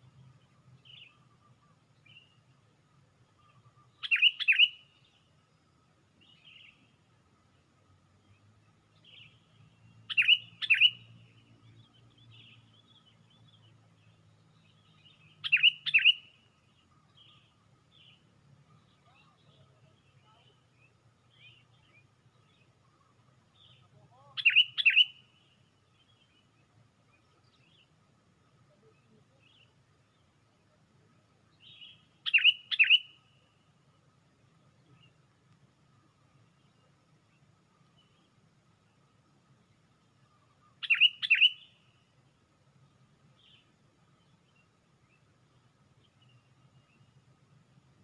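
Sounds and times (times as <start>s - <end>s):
soft bird calls: 0.0s - 48.0s
bulbul calling loud phrases: 3.4s - 5.2s, 10.0s - 11.2s, 15.0s - 16.4s, 18.8s - 26.3s, 28.6s - 29.8s, 30.6s - 33.4s, 40.5s - 41.8s.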